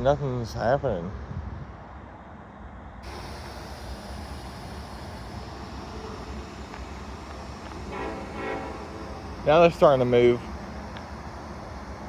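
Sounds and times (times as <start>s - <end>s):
diesel locomotive rumble: 0.0s - 12.0s
air brakes hissing: 3.0s - 12.0s.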